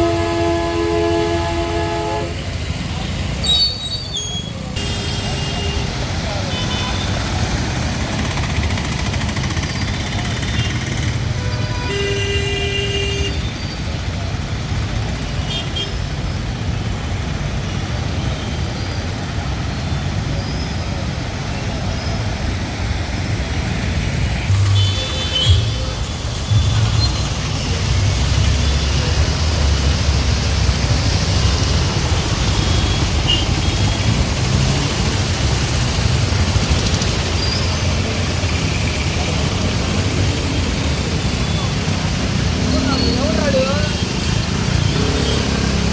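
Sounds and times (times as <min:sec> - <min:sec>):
street traffic: 0:00.0 - 0:45.9
car horn toots: 0:24.5 - 0:27.3.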